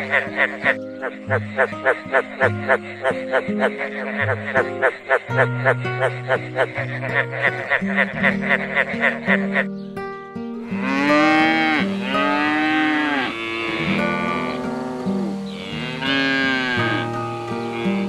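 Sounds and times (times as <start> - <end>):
soft guitar music: 0.0 - 18.0
cattle mooing: 10.6 - 18.0.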